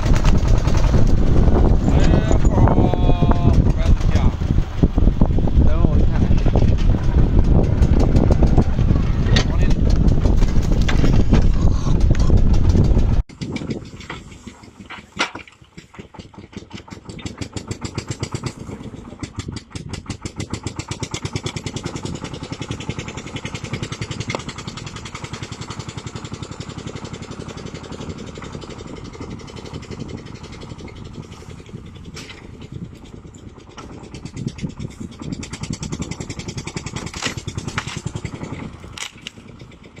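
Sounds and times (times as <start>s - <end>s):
machine engine chugging: 0.0s - 40.0s.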